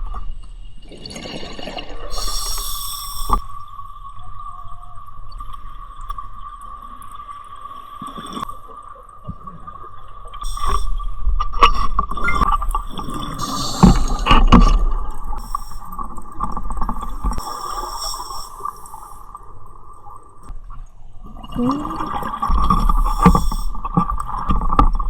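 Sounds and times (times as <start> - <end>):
bubbles rumbling and gurgling: 0.0 - 2.4, 3.3 - 25.0
diver breathing through regulator: 2.1 - 3.5, 10.4 - 11.0, 13.1 - 14.8, 15.4 - 15.9, 17.2 - 19.3, 22.8 - 23.8.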